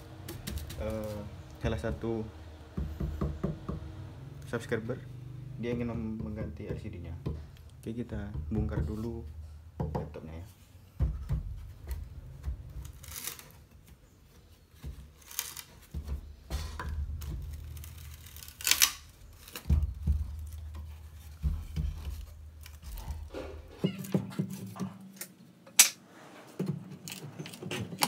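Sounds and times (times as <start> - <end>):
short scraping or tearing: 12.8 - 13.7, 15.1 - 15.9, 17.4 - 19.7
clicks and knocks of tools: 24.1 - 26.0.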